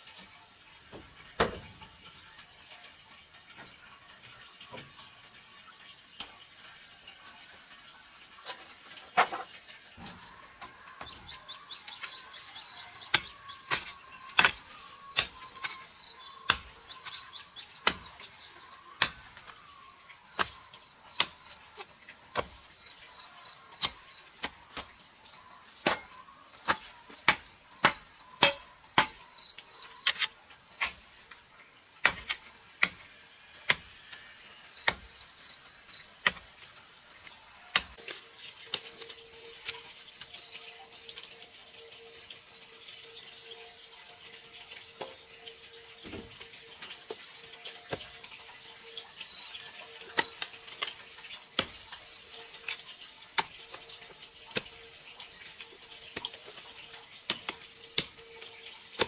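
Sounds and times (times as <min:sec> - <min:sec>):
high insect drone: 0:09.4 - 0:59.0
hand tool striking wood: 0:12.8 - 0:18.2, 0:19.0 - 0:19.5, 0:22.3 - 0:22.6, 0:23.7 - 0:25.0, 0:25.8 - 0:29.3, 0:32.0 - 0:33.1, 0:33.7 - 0:34.0, 0:34.8 - 0:35.2, 0:37.7 - 0:38.0.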